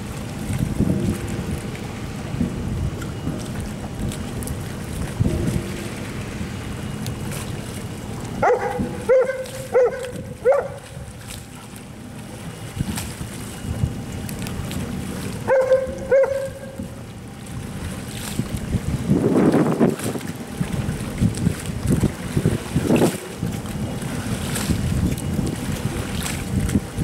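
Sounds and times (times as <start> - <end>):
wind noise on microphone: 0.0 - 6.6, 8.4 - 11.4, 12.5 - 14.0, 17.6 - 27.0
dog barking: 8.4 - 10.8, 15.5 - 16.6.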